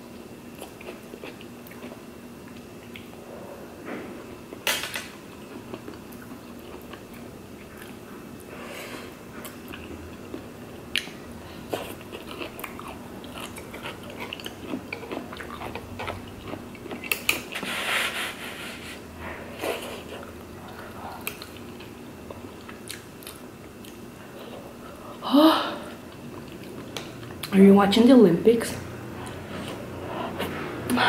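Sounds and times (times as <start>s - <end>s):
chewing mouth sounds: 9.4s - 17.6s.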